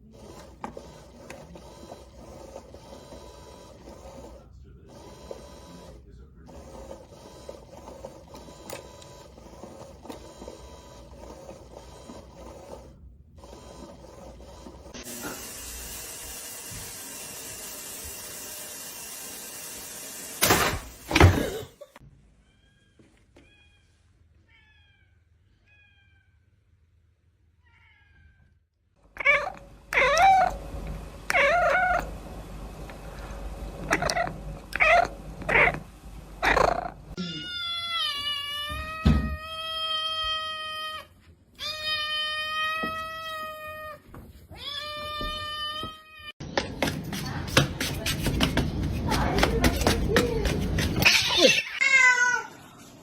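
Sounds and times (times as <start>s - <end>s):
cat meowing loudly: 37.2s - 46.3s.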